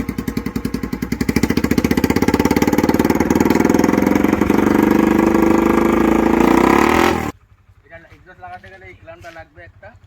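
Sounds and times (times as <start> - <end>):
motorcycle exhaust pulsing: 0.0 - 10.0.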